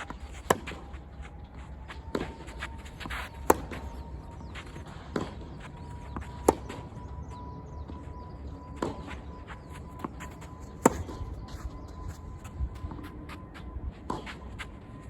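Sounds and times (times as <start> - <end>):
ball bouncing on court: 3.0 - 6.9, 8.7 - 13.1
tennis ball struck by racket: 3.2 - 4.0, 6.3 - 6.8.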